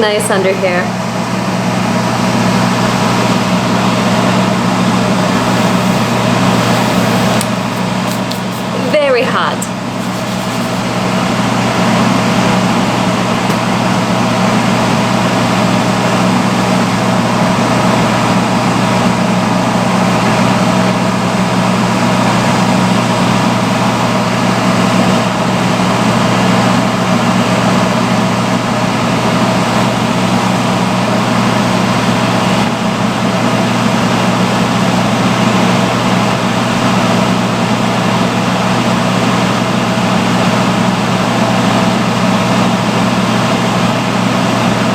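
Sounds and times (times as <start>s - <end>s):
hood hair dryer blowing: 2.2s - 16.8s.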